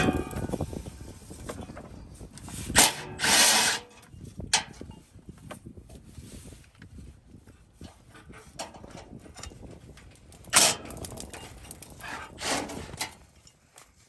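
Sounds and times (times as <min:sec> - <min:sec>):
metal pipes knocking and rattling: 0:00.0 - 0:00.8, 0:10.5 - 0:13.5
metal pipe scraping: 0:00.0 - 0:05.0, 0:10.5 - 0:13.5.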